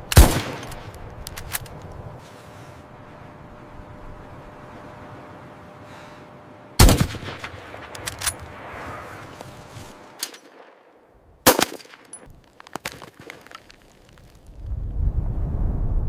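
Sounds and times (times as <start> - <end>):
loud sharp cracks: 0.0 - 1.8, 6.8 - 9.4, 10.1 - 14.4
crackling: 0.0 - 14.8.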